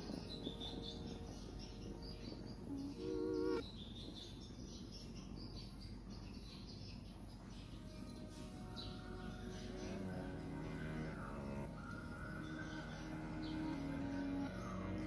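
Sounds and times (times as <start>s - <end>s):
steady low hum: 0.0s - 4.8s
birds chirping: 0.0s - 15.0s
short pitched tone: 2.7s - 3.6s.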